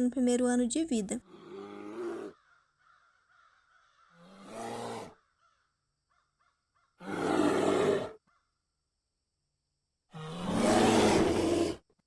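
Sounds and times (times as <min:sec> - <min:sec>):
polar bear roaring: 0:01.3 - 0:02.4, 0:04.2 - 0:05.2, 0:07.0 - 0:08.2, 0:10.2 - 0:11.8.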